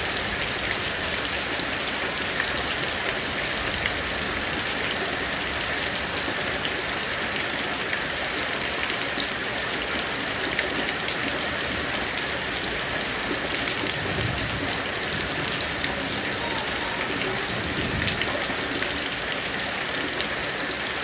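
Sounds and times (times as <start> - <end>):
heavy rain pattering: 0.0 - 21.0.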